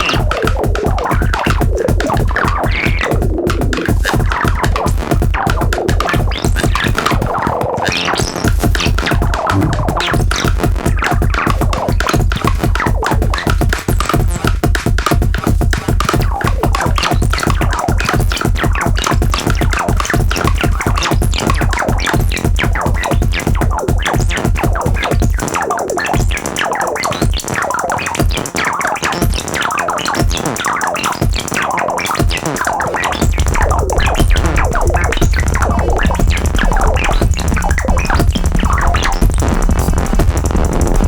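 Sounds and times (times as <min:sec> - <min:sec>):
glitchy electronic clicks: 0:00.0 - 0:41.0
heavy bass: 0:08.1 - 0:11.3, 0:33.0 - 0:41.0.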